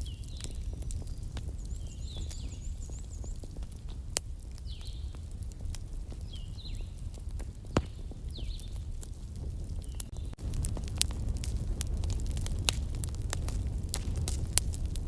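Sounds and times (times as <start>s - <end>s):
birds chirping: 0.0s - 5.2s, 6.1s - 8.9s, 9.8s - 10.4s
campfire crackling: 0.0s - 15.0s
fire pop: 0.0s - 15.0s.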